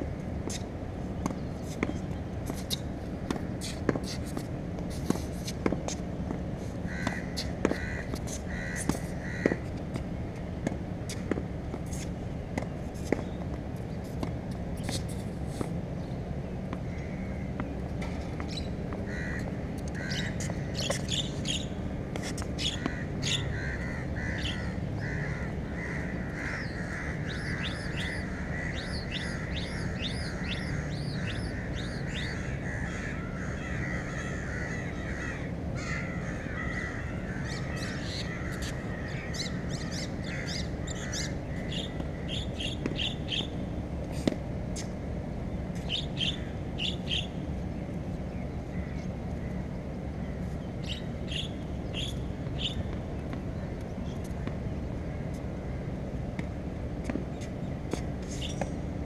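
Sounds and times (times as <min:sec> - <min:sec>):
birds calling and chirping: 0:16.8 - 0:43.7, 0:45.7 - 0:55.4, 0:57.3 - 0:58.8.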